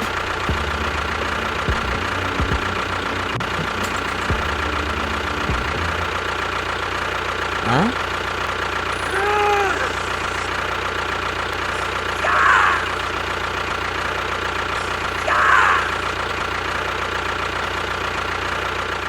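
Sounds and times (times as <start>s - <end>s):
small motor humming: 0.0s - 7.3s.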